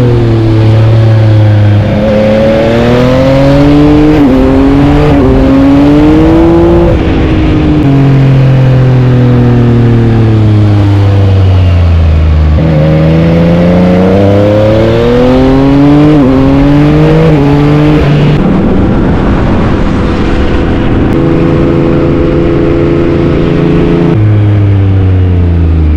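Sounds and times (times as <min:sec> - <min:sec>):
motorcycle engine accelerating: 0:00.0 - 0:25.9
wind rushing: 0:13.9 - 0:24.1.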